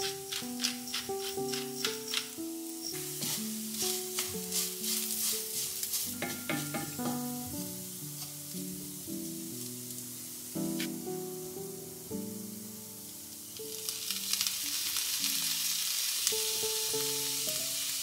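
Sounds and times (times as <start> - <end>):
wooden spatula scraping a pan: 0.0 - 8.5
light background melody: 0.0 - 15.6, 16.2 - 18.0
potatoes sizzling in a frying pan: 0.0 - 18.0.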